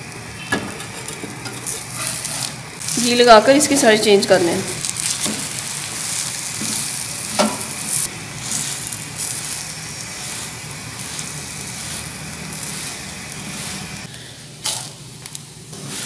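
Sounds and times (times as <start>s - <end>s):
ghee sizzling on a griddle: 0.0s - 16.0s
metal spatula scraping: 0.4s - 5.6s, 10.2s - 14.9s.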